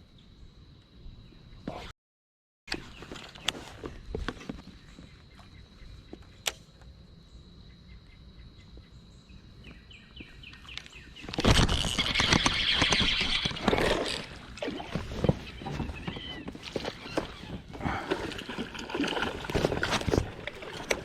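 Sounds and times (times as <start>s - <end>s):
water splashing and thrashing: 11.4s - 21.0s.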